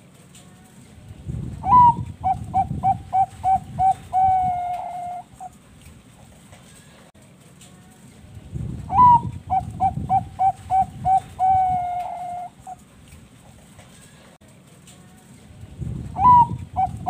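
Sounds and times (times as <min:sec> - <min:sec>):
dove cooing: 0:01.6 - 0:05.6, 0:08.9 - 0:12.8, 0:16.2 - 0:17.0.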